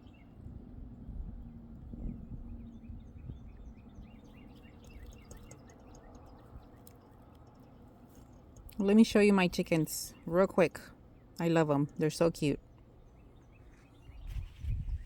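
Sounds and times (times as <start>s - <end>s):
low outdoor rumble: 0.0s - 15.0s
small birds chirping: 0.0s - 15.0s.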